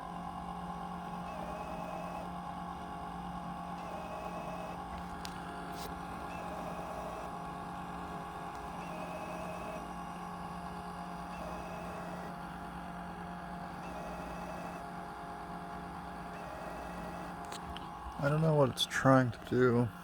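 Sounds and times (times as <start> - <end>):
robot vacuum motor whirring: 3.8 - 12.4.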